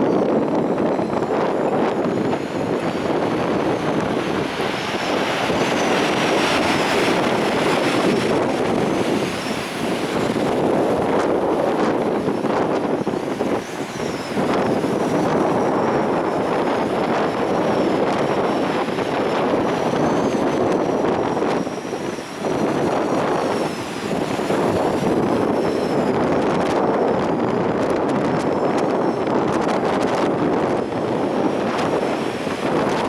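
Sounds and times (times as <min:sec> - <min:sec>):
faint high wavering whistle: 0:00.0 - 0:11.2, 0:12.7 - 0:26.2
wind blasting the microphone: 0:00.0 - 0:33.0.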